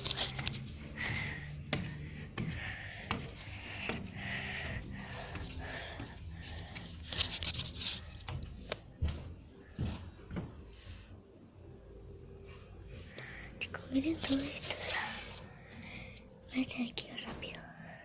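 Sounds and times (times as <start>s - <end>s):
breathing close to microphone: 0.0s - 8.5s, 12.9s - 13.8s, 14.6s - 16.4s
footsteps walking: 0.0s - 11.0s
rustling: 4.8s - 10.2s.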